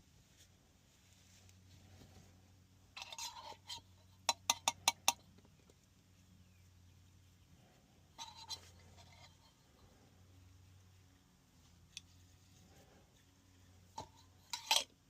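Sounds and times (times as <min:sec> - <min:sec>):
tools scraping and rustling: 0:01.3 - 0:05.2, 0:07.6 - 0:10.2, 0:11.7 - 0:15.0.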